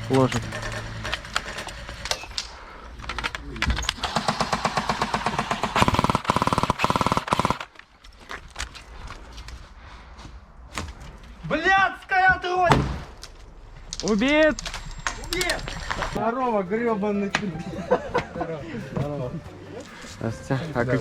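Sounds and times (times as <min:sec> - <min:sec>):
airsoft gun firing bursts: 0:04.0 - 0:07.7.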